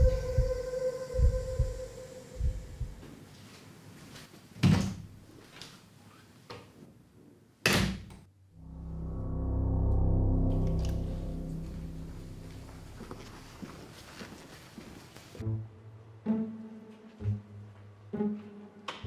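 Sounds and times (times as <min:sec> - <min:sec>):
low heartbeat-like thumps: 0:00.0 - 0:03.1
steady hum: 0:08.4 - 0:13.9
music: 0:08.5 - 0:13.4, 0:15.4 - 0:19.0.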